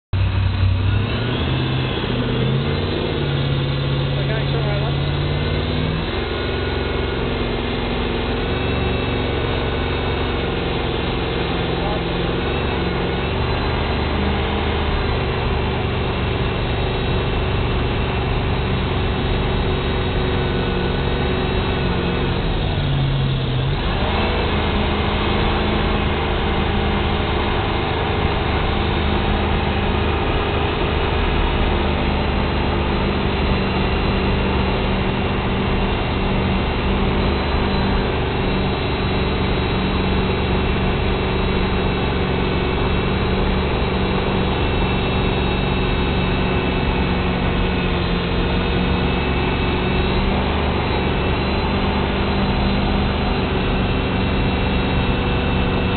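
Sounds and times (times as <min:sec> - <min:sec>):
boat engine running: 0:00.1 - 0:55.9.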